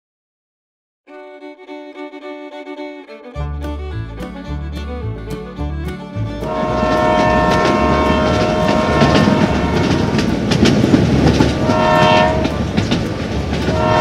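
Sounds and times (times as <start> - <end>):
rumbling clatter of running train: 6.4 - 14.0
train horn blasts: 6.4 - 14.0.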